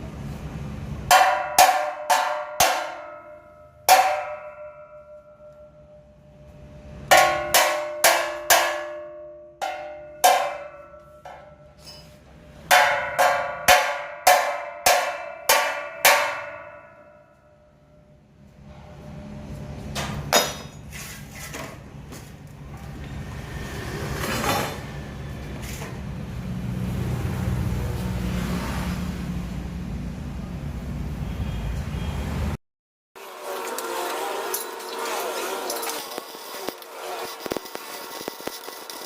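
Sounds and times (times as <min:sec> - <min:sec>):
hammer striking steel: 0:01.0 - 0:06.2, 0:07.0 - 0:17.8, 0:20.0 - 0:20.9, 0:33.6 - 0:39.0.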